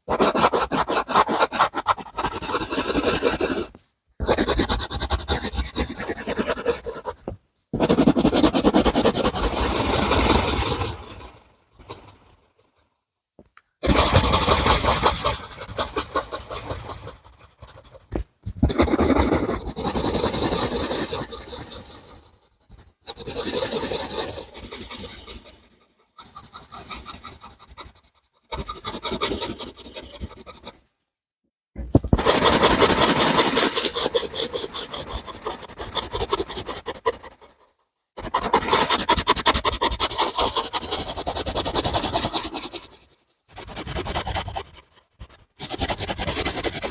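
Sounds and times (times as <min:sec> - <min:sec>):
drawing tool scratching paper: 0:00.0 - 0:11.2, 0:13.8 - 0:30.8, 0:32.0 - 0:46.9.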